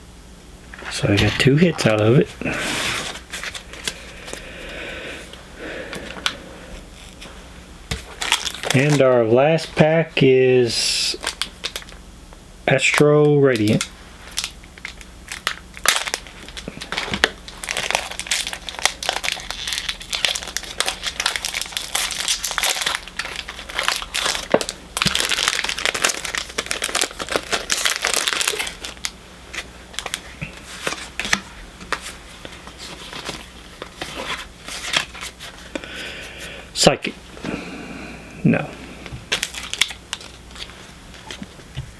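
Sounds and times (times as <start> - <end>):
foil wrapper tearing and crinkling: 8.0 - 9.3, 11.1 - 12.0, 12.8 - 35.8, 39.3 - 41.4.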